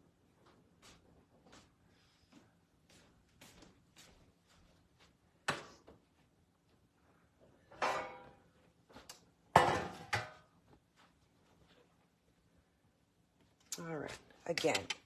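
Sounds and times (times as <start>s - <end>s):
kitchen knocks and clatter: 7.7s - 8.5s, 9.5s - 10.5s.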